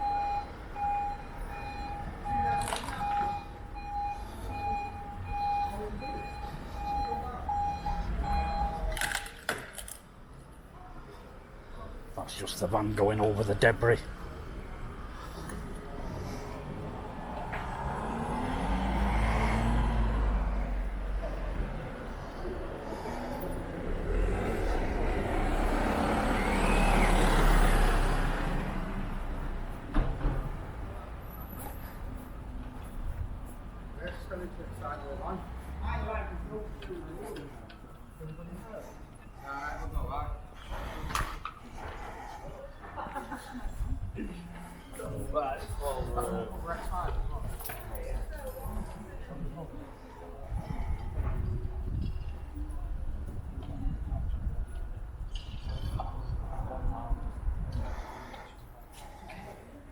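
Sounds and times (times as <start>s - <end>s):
reversing beeper: 0.0s - 9.2s
vehicle engine rumble: 0.0s - 59.9s.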